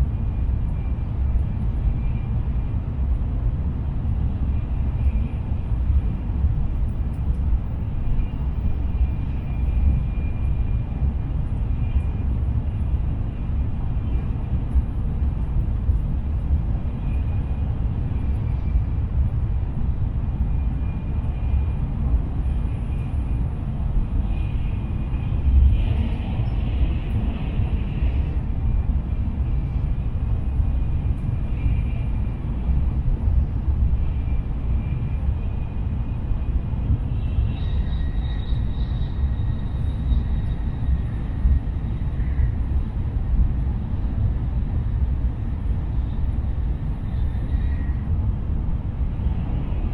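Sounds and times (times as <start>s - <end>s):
faint high whine: 20.4s - 48.2s.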